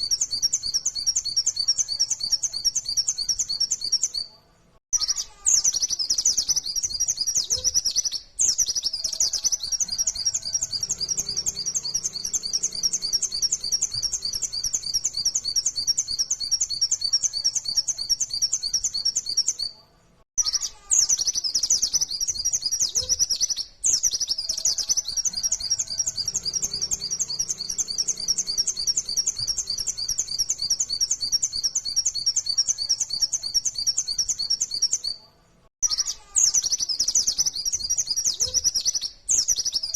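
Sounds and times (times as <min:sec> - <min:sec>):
bird singing rapid high chirps: 0:00.0 - 0:04.3, 0:04.9 - 0:19.8, 0:20.4 - 0:35.2, 0:35.8 - 0:39.9.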